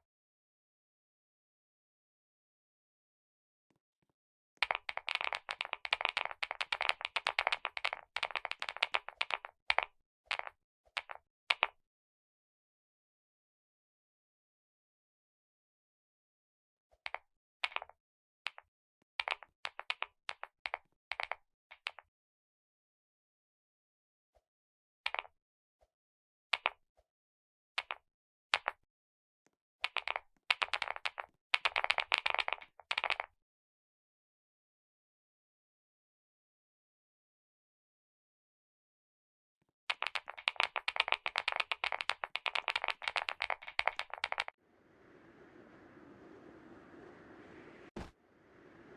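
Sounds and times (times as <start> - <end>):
fast typing on keyboard: 40.0 - 44.5.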